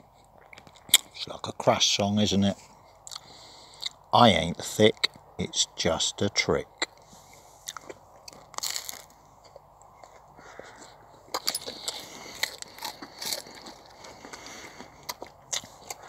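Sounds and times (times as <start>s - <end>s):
crunchy chewing of toast: 0.0s - 1.6s, 2.6s - 4.1s, 6.8s - 16.0s.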